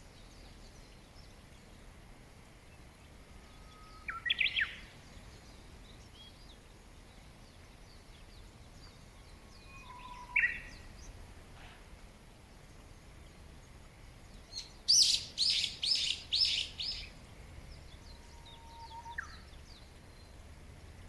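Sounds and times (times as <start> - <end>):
outdoor background hiss: 0.0 - 21.0
bird whistling song: 3.6 - 4.8, 9.6 - 10.8, 14.5 - 17.1, 18.2 - 19.5
distant bird chirps: 9.5 - 11.2, 14.5 - 17.2.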